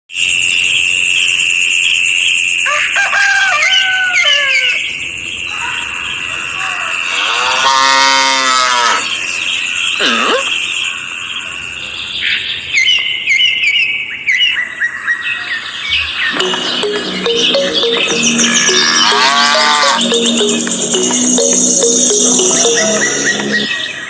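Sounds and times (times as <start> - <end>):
farm animal calls: 6.6 - 9.2, 18.6 - 20.0.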